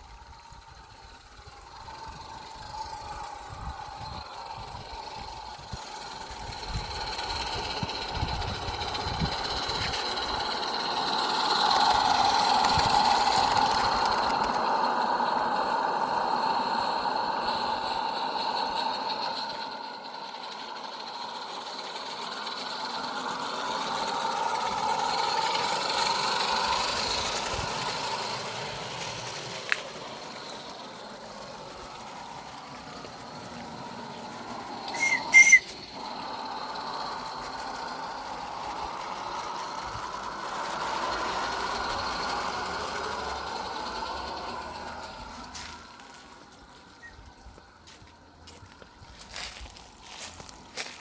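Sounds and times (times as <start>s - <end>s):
steam locomotive hissing: 19.7s - 51.0s
steam whistle toots: 34.1s - 36.3s.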